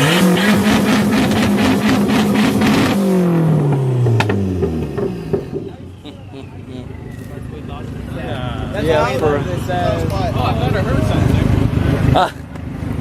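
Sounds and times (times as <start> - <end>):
car engine revving: 0.0 - 13.0
exhaust pops: 3.6 - 5.9.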